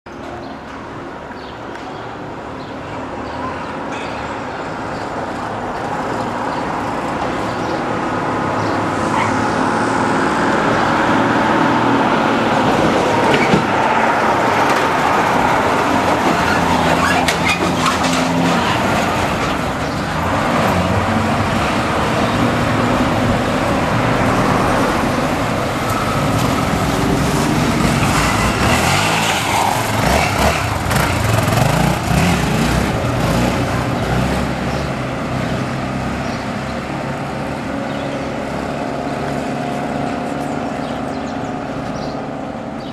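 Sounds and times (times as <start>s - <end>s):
motorcycle engine revving: 24.9s - 36.4s.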